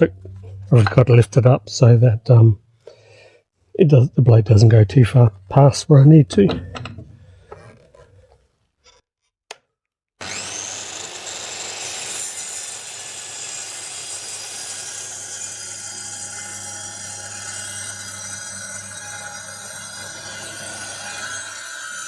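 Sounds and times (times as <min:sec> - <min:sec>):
circular saw cutting plywood: 0:04.5 - 0:08.4, 0:10.2 - 0:22.0.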